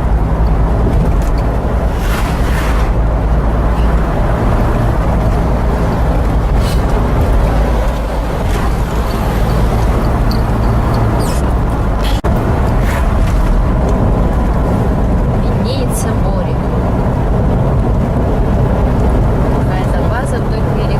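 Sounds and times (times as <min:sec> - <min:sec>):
car engine and road noise: 0:00.0 - 0:20.9.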